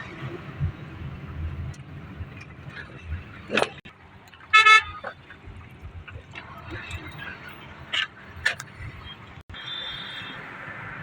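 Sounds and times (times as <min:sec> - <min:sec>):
car driving on road: 0:00.0 - 0:11.0
vehicle horn toot: 0:04.5 - 0:05.1, 0:09.5 - 0:10.4.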